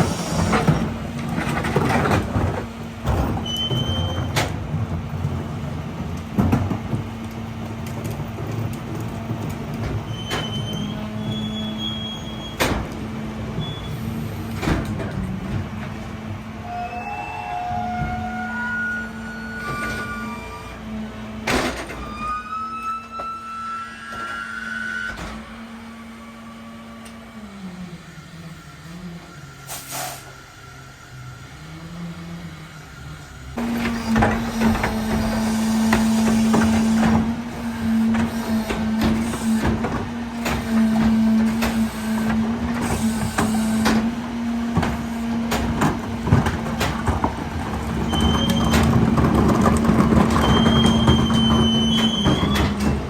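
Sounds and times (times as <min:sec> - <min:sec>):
garbage truck engine and hydraulics: 0:00.0 - 0:53.0
metallic squeals: 0:10.1 - 0:12.6, 0:16.6 - 0:21.1, 0:22.0 - 0:25.4, 0:50.3 - 0:53.0.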